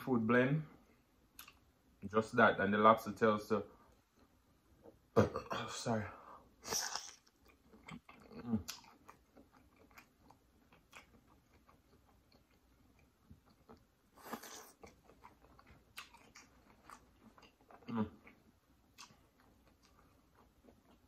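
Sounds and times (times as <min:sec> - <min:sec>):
chewing with wet mouth clicks: 0:01.3 - 0:01.6, 0:06.8 - 0:21.0.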